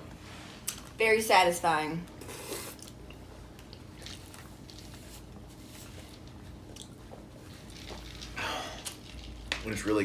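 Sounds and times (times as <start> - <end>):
low room hum: 0.0 - 10.0
people chewing: 2.2 - 5.3, 6.2 - 9.5.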